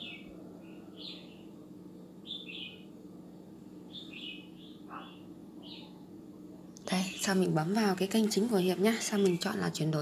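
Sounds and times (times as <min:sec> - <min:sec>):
bird chirping: 0:00.0 - 0:01.5, 0:02.2 - 0:02.9, 0:03.9 - 0:06.0
faint steady hum: 0:00.0 - 0:10.0.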